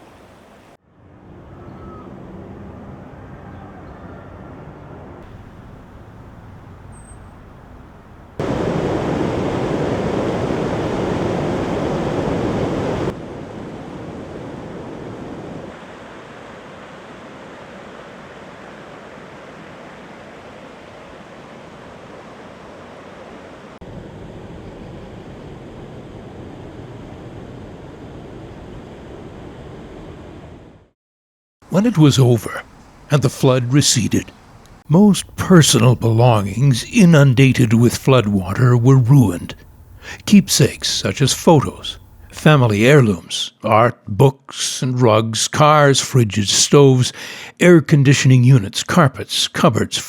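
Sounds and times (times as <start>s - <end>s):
rushing floodwater roar: 5.2s - 13.2s, 31.7s - 43.2s.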